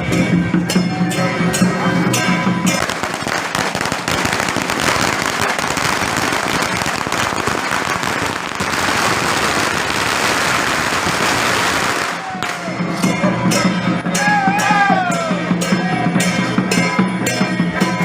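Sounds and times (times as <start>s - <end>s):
music: 0.0s - 7.7s, 11.0s - 18.0s
firecrackers crackling: 2.7s - 13.2s.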